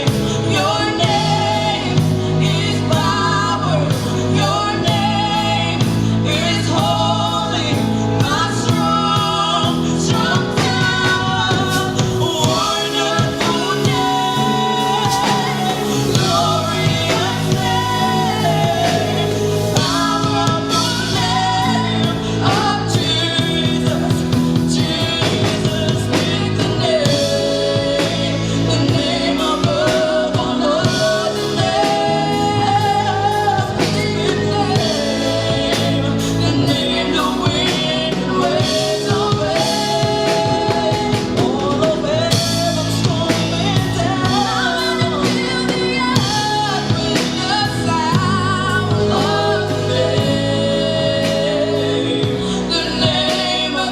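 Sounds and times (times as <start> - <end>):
band with bass and drums: 0.0 - 53.9
person singing: 0.0 - 53.9.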